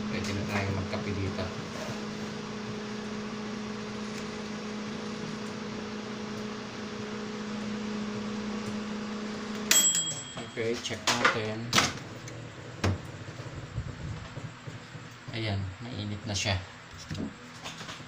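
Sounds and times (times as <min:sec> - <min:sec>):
fan whooshing: 0:00.0 - 0:18.0
microwave oven humming: 0:00.0 - 0:18.0.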